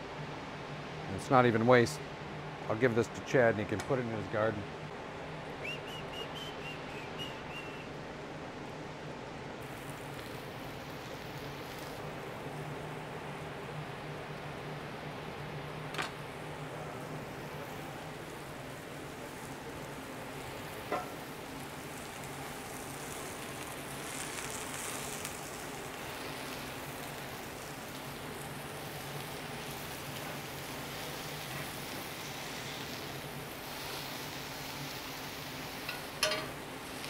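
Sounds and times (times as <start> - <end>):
mushrooms sizzling in pan: 9.6 - 37.0.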